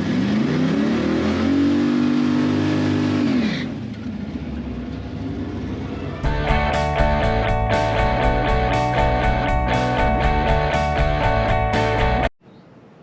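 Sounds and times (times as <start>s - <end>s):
car engine revving: 0.0s - 12.0s
rock music with electric guitar: 6.2s - 12.3s.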